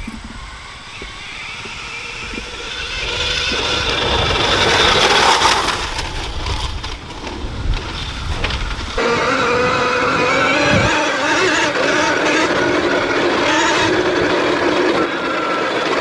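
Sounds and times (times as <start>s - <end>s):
electric motorbike whine passing: 0.0s - 16.0s
tyre noise: 0.0s - 16.0s.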